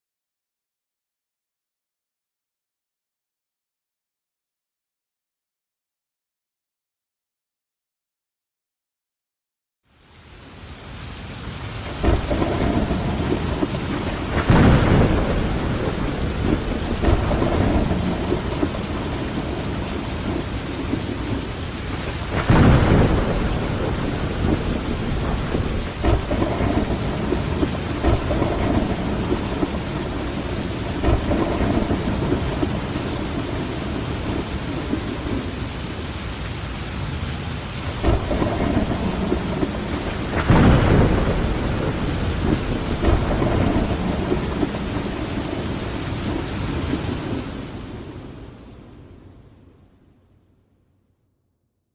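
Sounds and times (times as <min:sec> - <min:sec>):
rain on a window: 0:09.8 - 0:50.6
thunder rolling: 0:11.7 - 0:36.3, 0:36.9 - 0:49.2.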